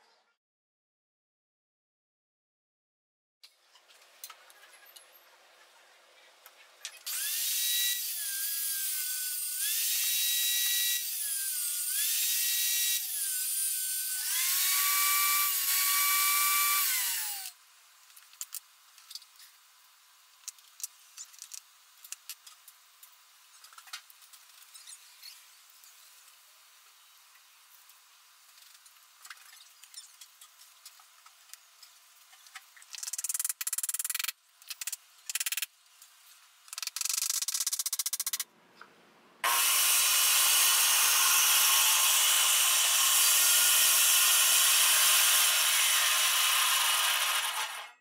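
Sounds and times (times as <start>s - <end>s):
electric drill whining: 7.1s - 17.6s, 39.4s - 48.0s.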